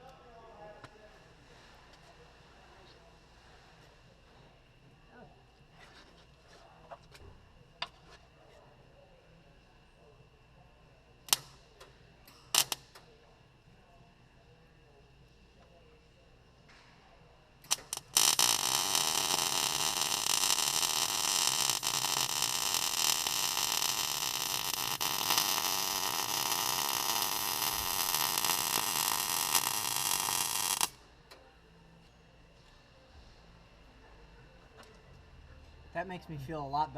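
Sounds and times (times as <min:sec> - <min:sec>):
electric welder crackling: 0:12.5 - 0:12.9, 0:17.6 - 0:31.0.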